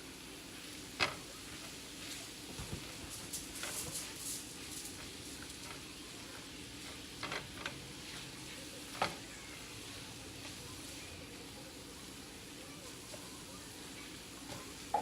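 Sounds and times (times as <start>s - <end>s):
meat sizzling in a pot: 4.4s - 12.5s.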